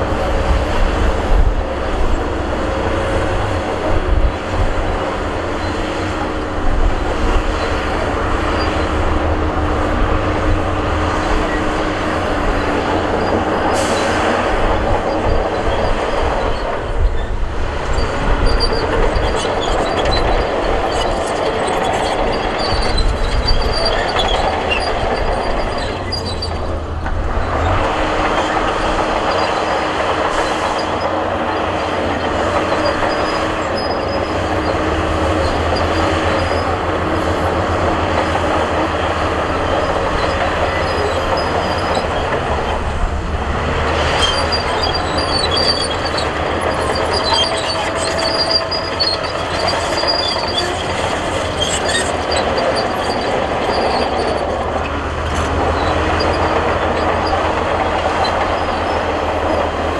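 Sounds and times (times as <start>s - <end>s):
diesel engine under load: 0.0s - 59.9s
steel tracks clanking and squealing: 0.0s - 59.9s.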